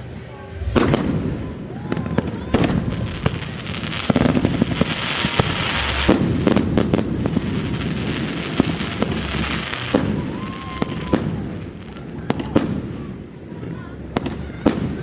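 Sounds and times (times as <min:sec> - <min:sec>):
fireworks crackling hiss: 0:00.5 - 0:13.3
fireworks bangs and pops: 0:00.6 - 0:15.0.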